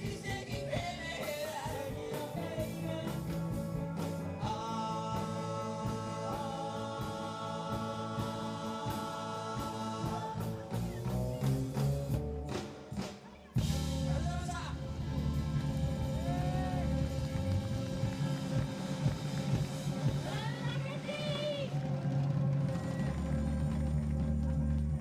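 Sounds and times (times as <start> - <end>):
person singing: 0.0 - 11.5
live band playing: 0.0 - 25.0.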